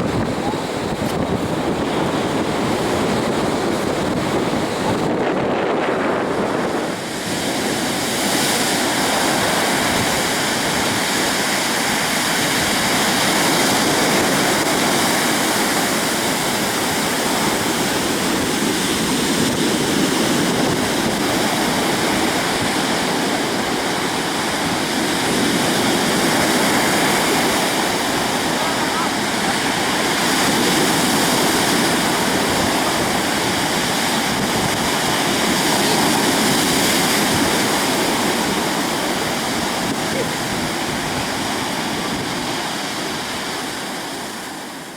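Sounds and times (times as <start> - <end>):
waterfall rushing: 20.9 - 44.9.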